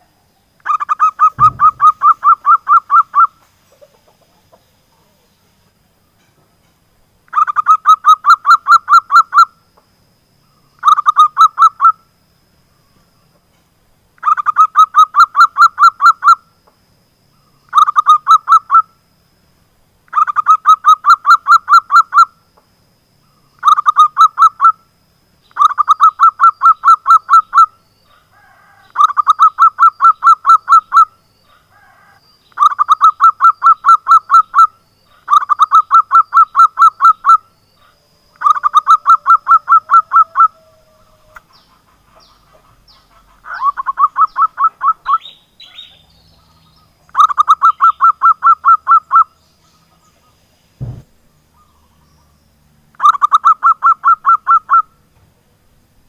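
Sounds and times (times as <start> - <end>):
dove cooing: 0.7 - 5.2, 35.3 - 45.2.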